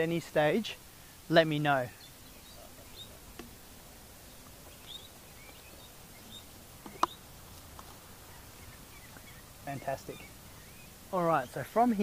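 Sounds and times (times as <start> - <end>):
faint bird chirps: 1.6 - 3.3, 4.2 - 7.3, 8.2 - 11.8.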